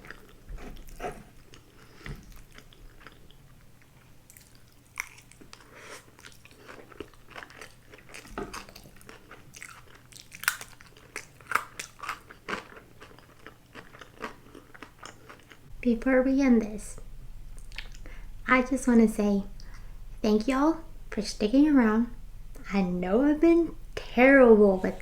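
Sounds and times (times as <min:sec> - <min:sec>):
close chewing with mouth clicks: 0:00.0 - 0:15.7.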